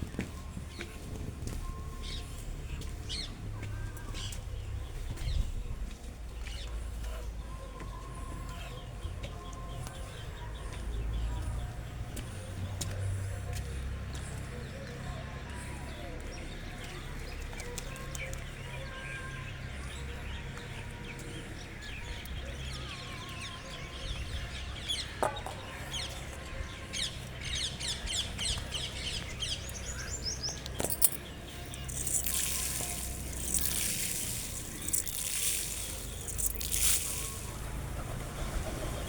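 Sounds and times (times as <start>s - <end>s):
birds chirping: 0.0s - 39.0s
flurry of wingbeats: 31.7s - 39.0s.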